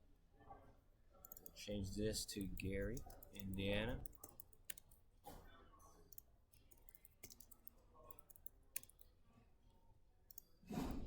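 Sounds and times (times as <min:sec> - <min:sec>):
computer mouse clicks: 0:01.2 - 0:01.6, 0:02.4 - 0:05.0, 0:06.1 - 0:09.1, 0:10.3 - 0:10.5
keyboard typing: 0:02.4 - 0:05.0, 0:06.1 - 0:09.1.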